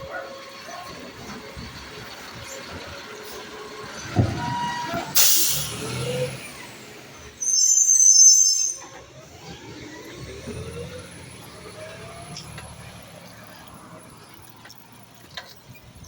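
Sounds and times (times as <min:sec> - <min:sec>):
garbage truck engine rumble: 0:00.0 - 0:16.0
low clunk: 0:04.0 - 0:05.1
air brake hiss: 0:05.1 - 0:06.1
high-pitched squeal: 0:07.4 - 0:10.6.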